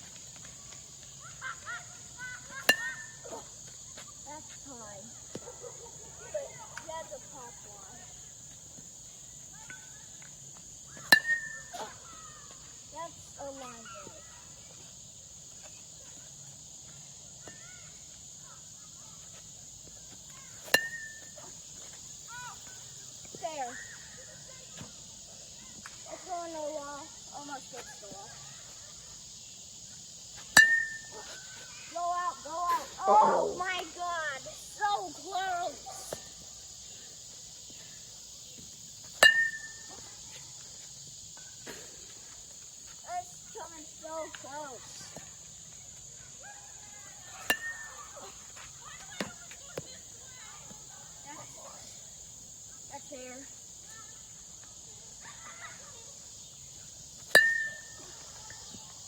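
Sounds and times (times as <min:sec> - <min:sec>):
metal bat hitting ball: 0:11.1 - 0:11.6, 0:20.7 - 0:21.2, 0:30.6 - 0:31.1, 0:39.2 - 0:39.8, 0:47.5 - 0:47.9, 0:57.4 - 0:58.0
high-pitched insect drone: 0:20.4 - 0:46.1, 0:51.1 - 0:59.0.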